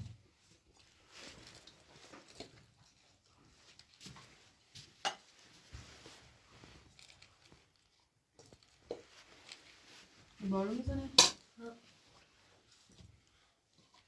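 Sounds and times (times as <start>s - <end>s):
faint handling clicks and knocks: 0.7s - 10.0s.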